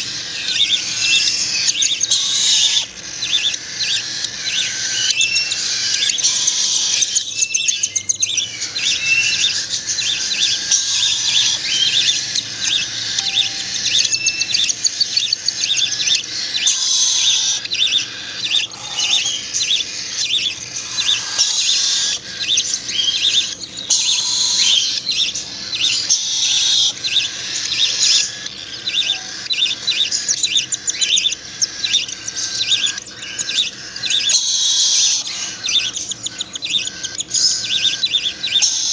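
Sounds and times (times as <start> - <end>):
chicks chirping: 0.0 - 38.9.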